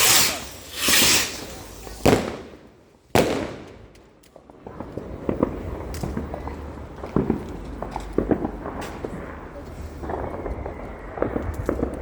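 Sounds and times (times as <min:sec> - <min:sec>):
firework bang: 0:00.0 - 0:02.6, 0:03.2 - 0:03.8.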